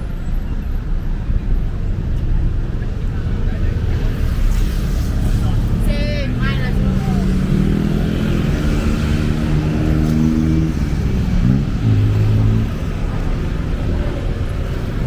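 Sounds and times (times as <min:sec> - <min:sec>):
street traffic engines: 0:00.0 - 0:15.0
engine revving: 0:04.9 - 0:15.0.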